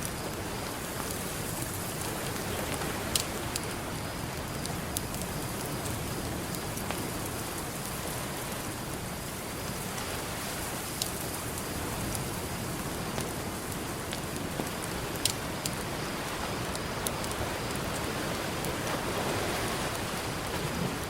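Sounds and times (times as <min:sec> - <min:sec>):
campfire crackling and popping: 0:00.0 - 0:21.0
ocean surf: 0:16.2 - 0:21.0.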